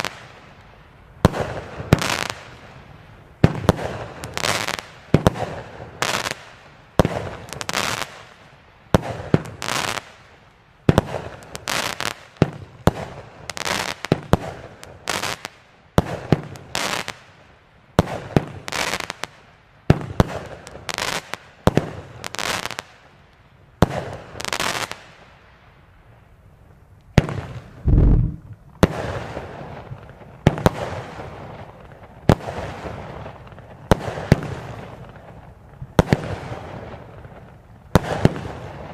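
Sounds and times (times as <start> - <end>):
deep firework boom: 27.8 - 28.6.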